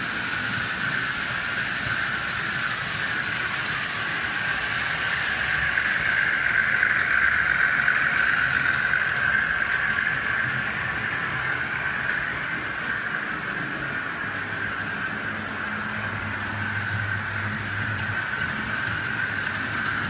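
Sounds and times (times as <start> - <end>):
model train whirring: 0.0 - 20.0
faint ticks over track: 0.1 - 20.0.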